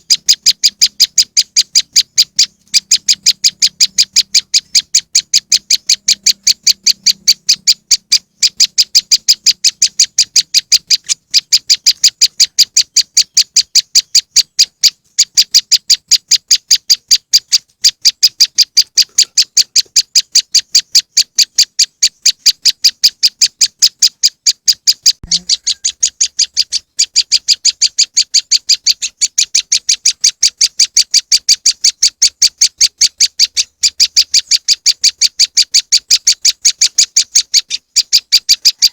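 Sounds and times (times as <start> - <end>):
bird call high sharp chips: 0.0 - 38.9.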